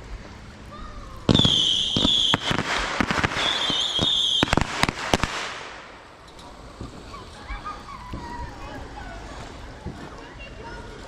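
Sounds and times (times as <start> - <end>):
firework cracks and bangs: 1.2 - 7.1
firework whistle: 1.3 - 5.8.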